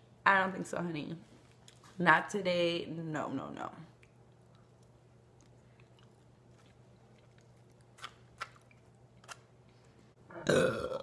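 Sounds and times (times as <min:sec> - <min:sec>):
chewing noodles: 0:04.0 - 0:10.0
loud burp: 0:10.3 - 0:11.0.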